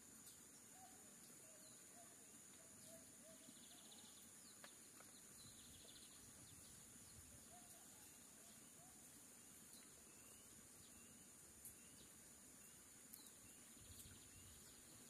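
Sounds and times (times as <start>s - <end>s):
faint bird chirps: 0.0s - 15.0s
faint high hiss: 0.0s - 15.0s
soft ticks: 13.1s - 13.4s.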